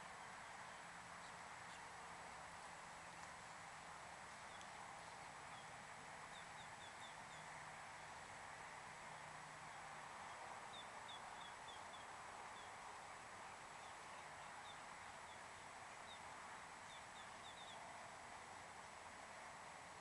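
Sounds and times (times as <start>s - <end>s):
low hiss: 0.0s - 20.0s
bird chirping: 4.4s - 7.5s, 9.2s - 12.8s, 13.8s - 17.9s.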